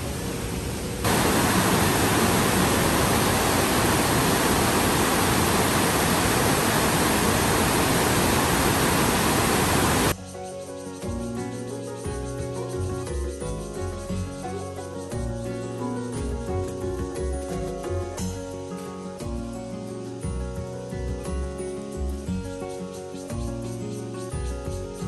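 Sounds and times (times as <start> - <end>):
heavy rain: 0.0 - 10.2.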